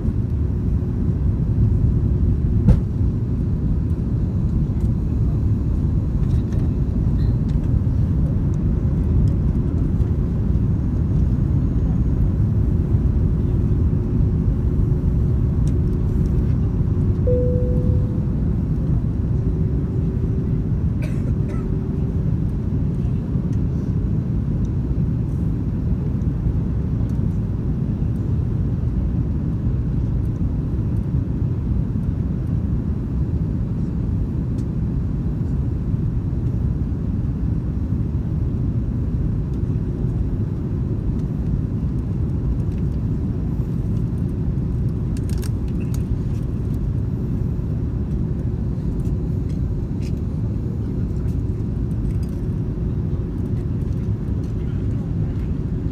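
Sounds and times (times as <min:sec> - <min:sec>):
airliner engine rumble: 0:00.0 - 0:55.9
faint hum: 0:17.2 - 0:19.4
brief higher tone: 0:17.3 - 0:18.7.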